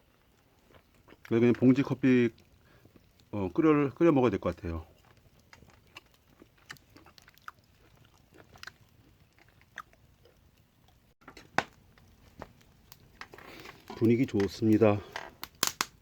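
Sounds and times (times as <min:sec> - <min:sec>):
person chewing food: 0:00.1 - 0:01.3, 0:02.4 - 0:03.3, 0:04.9 - 0:13.9.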